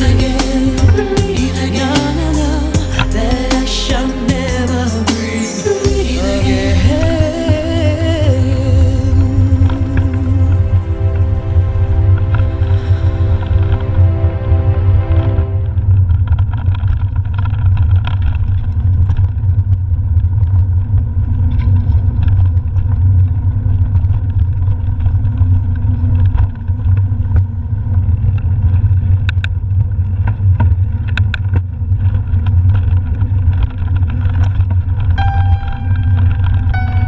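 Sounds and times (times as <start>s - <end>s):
music: 0.0s - 15.8s, 35.2s - 37.0s
wind rumble on microphone: 6.7s - 37.0s
bike clicks and rattles: 16.1s - 35.2s.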